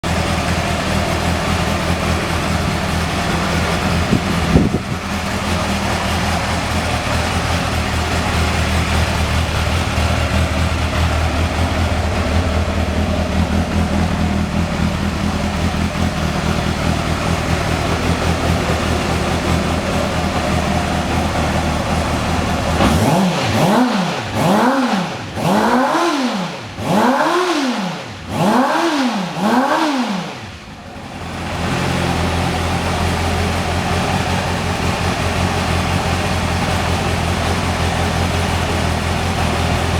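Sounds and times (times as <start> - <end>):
motorcycle engine idling: 0.0 - 39.9
motorcycle engine revving: 0.0 - 39.9.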